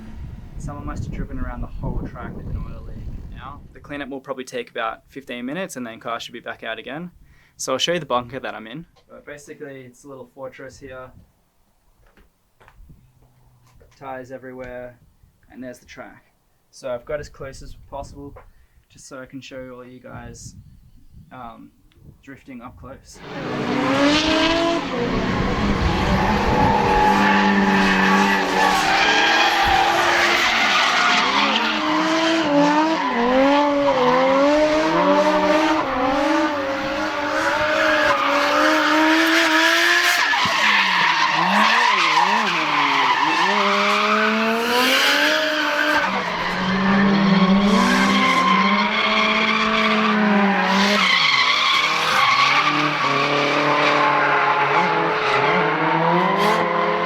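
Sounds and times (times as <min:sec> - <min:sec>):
car engines revving high: 0:23.2 - 0:57.0
tyres skidding on tarmac: 0:23.2 - 0:57.0.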